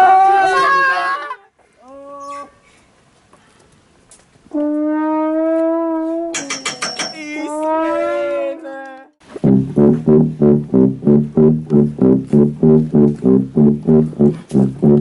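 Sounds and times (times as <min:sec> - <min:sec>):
brass instrument notes: 0:07.5 - 0:08.4, 0:09.3 - 0:15.0.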